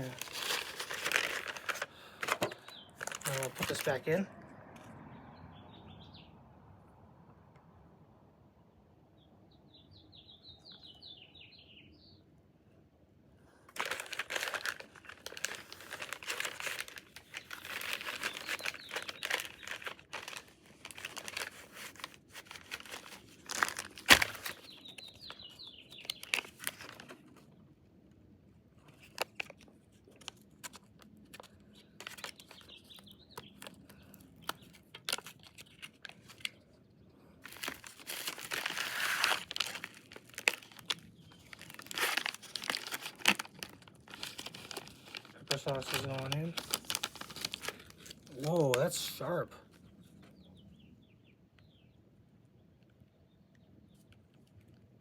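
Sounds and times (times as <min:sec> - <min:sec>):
plastic packaging crinkling: 0:00.0 - 0:04.1, 0:13.7 - 0:27.6, 0:28.8 - 0:36.7, 0:37.4 - 0:48.9.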